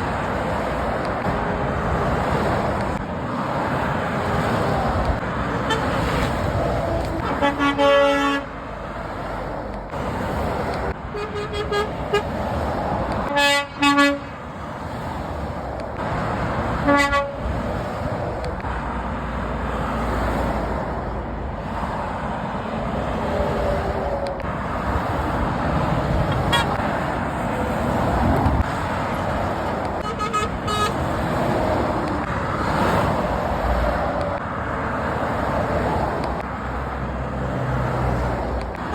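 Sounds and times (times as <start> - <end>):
lorries passing: 0.0 - 38.9
motorway traffic noise: 0.0 - 38.9
horn blasts: 5.5 - 8.6, 11.1 - 12.3, 13.2 - 14.4, 16.8 - 17.5, 26.2 - 26.8, 30.0 - 31.0.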